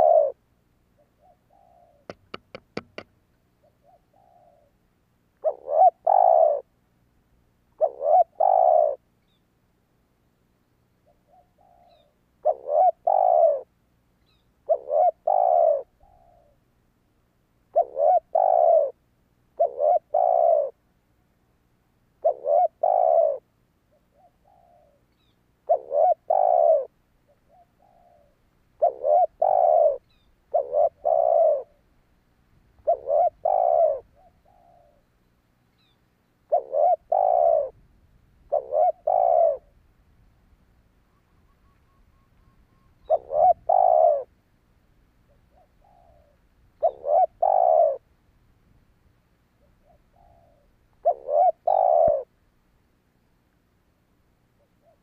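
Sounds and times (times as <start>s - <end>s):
dove cooing: 0.0s - 0.4s, 1.0s - 4.8s, 5.4s - 6.7s, 7.8s - 9.0s, 11.0s - 13.7s, 14.6s - 16.6s, 17.7s - 19.0s, 19.6s - 20.8s, 22.2s - 25.0s, 25.6s - 31.8s, 32.8s - 35.1s, 35.8s - 37.8s, 38.4s - 39.8s, 41.4s - 44.3s, 45.3s - 48.1s, 49.6s - 52.3s, 54.6s - 55.0s.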